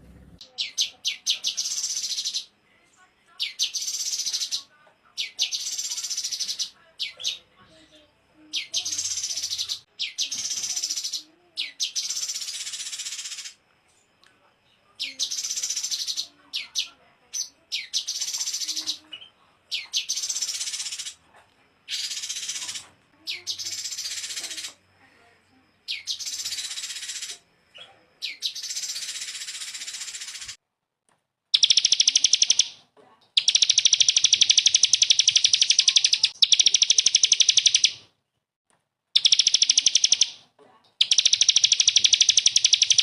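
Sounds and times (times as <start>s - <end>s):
songbird trilling: 0.4s - 2.5s, 3.4s - 7.5s, 8.5s - 13.6s, 15.0s - 21.2s, 21.9s - 24.8s, 25.9s - 27.4s, 31.6s - 32.8s, 33.4s - 38.0s, 39.2s - 40.4s, 41.0s - 43.0s.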